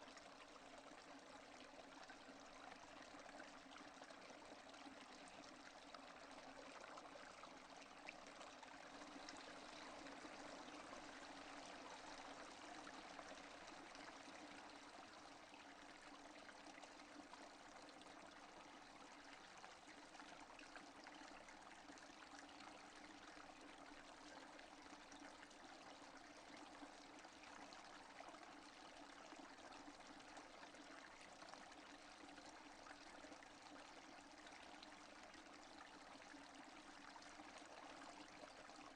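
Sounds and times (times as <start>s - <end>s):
faint steady rainfall: 7.4s - 18.0s.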